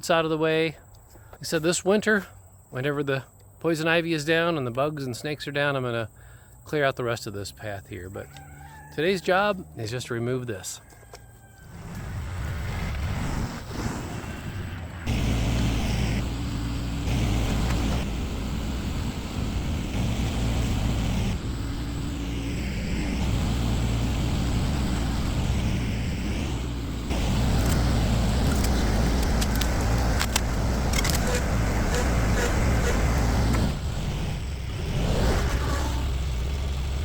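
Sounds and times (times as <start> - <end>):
tractor engine revving: 11.7 - 37.0.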